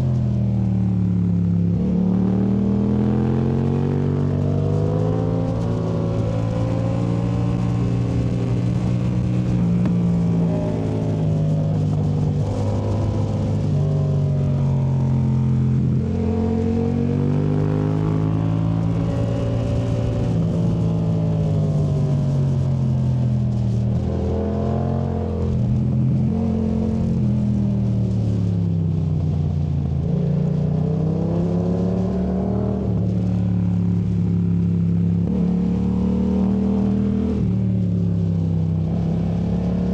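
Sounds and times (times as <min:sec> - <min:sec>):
motorcycle engine revving: 0:01.2 - 0:28.7.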